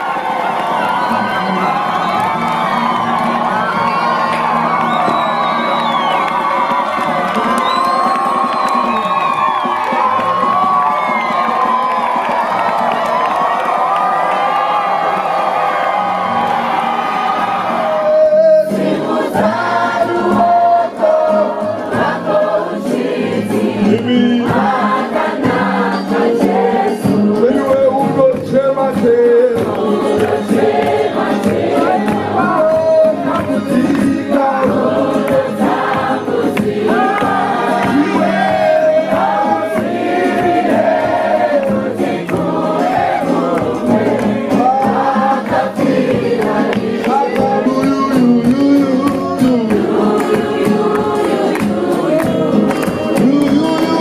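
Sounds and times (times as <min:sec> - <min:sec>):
choir singing a worship song: 0:16.9 - 0:27.6, 0:29.6 - 0:33.3, 0:34.0 - 0:47.7, 0:49.7 - 0:53.1.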